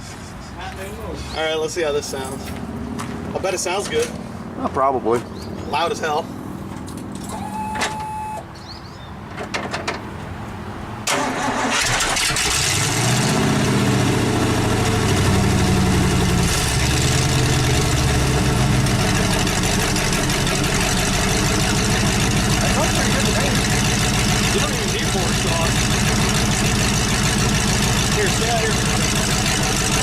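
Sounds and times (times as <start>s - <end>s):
truck engine starting and running loud: 10.8s - 30.0s.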